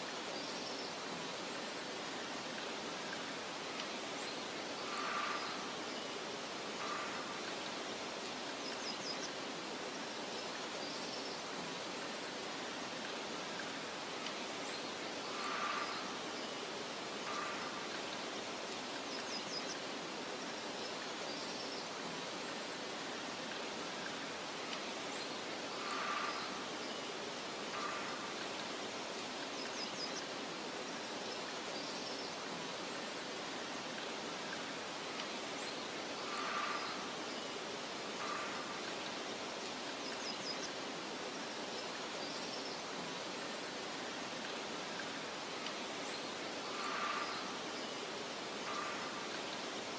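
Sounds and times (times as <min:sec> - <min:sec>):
wind rustling through grass: 0:00.0 - 0:49.9
faint bird chirps: 0:24.0 - 0:30.3, 0:34.4 - 0:40.8, 0:45.0 - 0:49.9.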